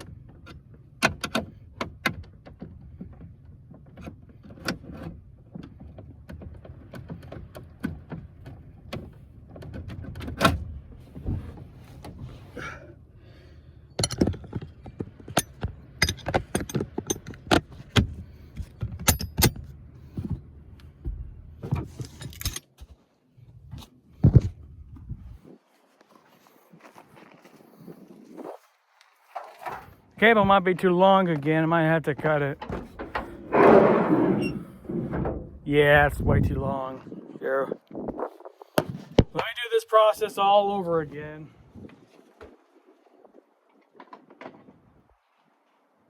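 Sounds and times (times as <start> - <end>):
low steady rumble: 10.6 - 22.6, 30.2 - 37.5
metallic clicks and knocks of tools: 14.0 - 19.7.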